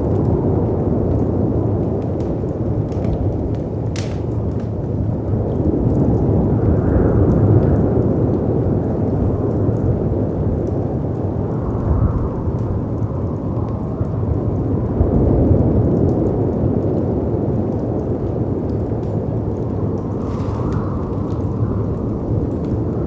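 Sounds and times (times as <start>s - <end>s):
fireplace crackling: 0.0s - 6.4s, 18.6s - 23.0s
wind rushing: 19.8s - 23.0s.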